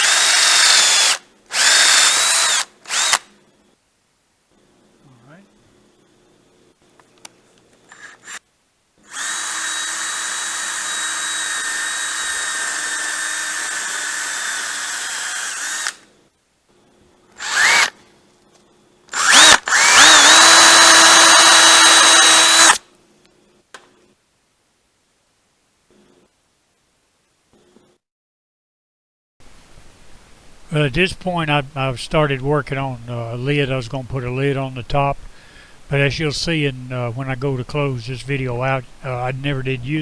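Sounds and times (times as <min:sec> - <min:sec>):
power carving tool whining: 0:00.0 - 0:03.3, 0:07.9 - 0:08.4, 0:09.0 - 0:16.1, 0:17.4 - 0:17.9, 0:19.1 - 0:22.8.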